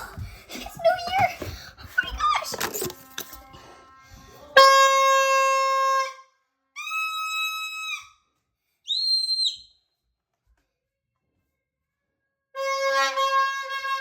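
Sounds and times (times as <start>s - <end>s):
party horn blasts: 2.0s - 7.2s, 12.6s - 14.0s.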